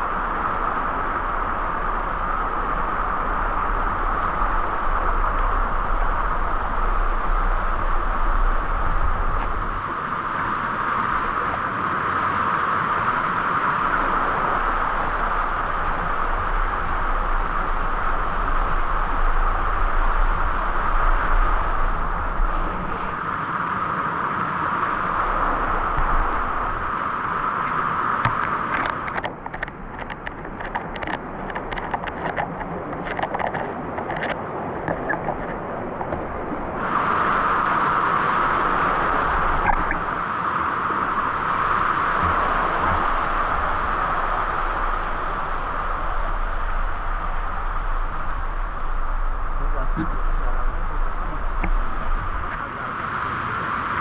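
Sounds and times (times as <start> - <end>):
falling water rushing: 24.9 - 40.3, 40.9 - 54.0
light ticks and taps: 28.2 - 36.2.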